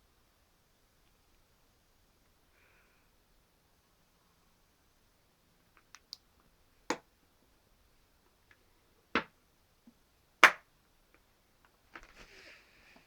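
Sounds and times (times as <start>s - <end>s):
sharp snaps: 5.7s - 6.3s, 10.4s - 10.7s.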